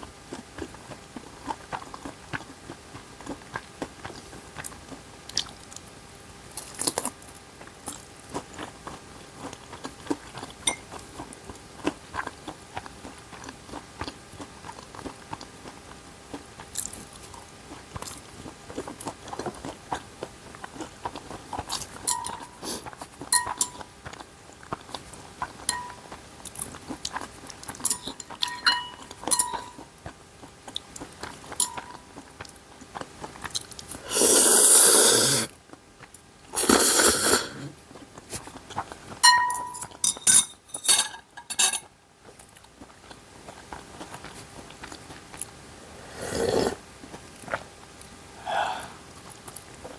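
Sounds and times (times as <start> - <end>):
person chewing: 0.0 - 40.4, 41.4 - 49.9
utensils clicking on dishes: 10.6 - 10.9, 21.7 - 22.7, 23.3 - 23.8, 25.7 - 26.1, 27.8 - 29.8, 31.5 - 32.0, 39.2 - 41.9.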